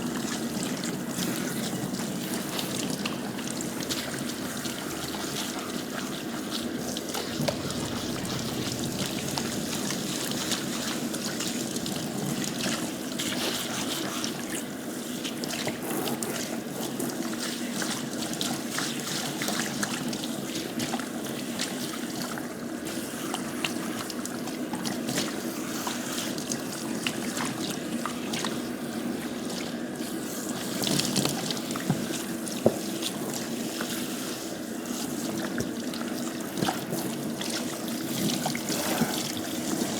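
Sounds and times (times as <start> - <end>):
water running and trickling: 0.0 - 22.5.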